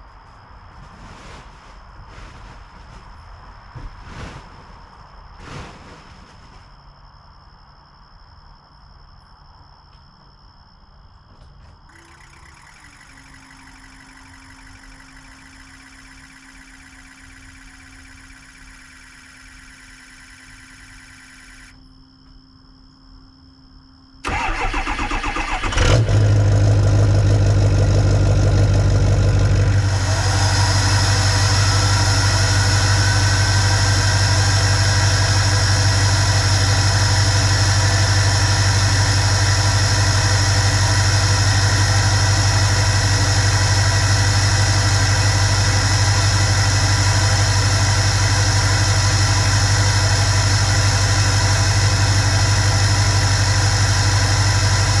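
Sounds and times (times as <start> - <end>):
faint whine rising in pitch: 0.0 - 4.8, 11.9 - 21.8, 29.5 - 55.0
diesel engine cranking: 24.2 - 55.0
diesel engine idling: 24.2 - 55.0.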